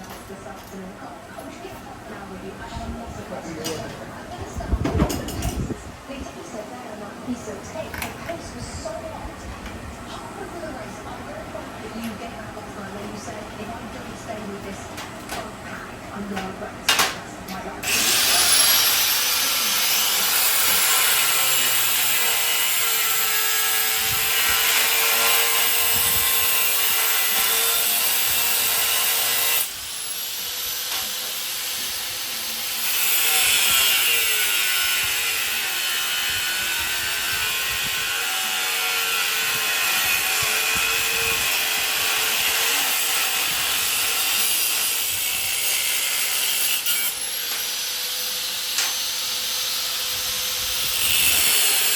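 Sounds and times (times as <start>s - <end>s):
angle grinder grinding steel: 17.8s - 51.9s.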